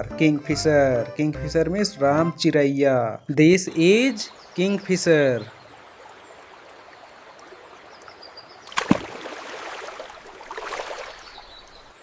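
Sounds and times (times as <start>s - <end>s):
water splashing: 8.7s - 11.4s.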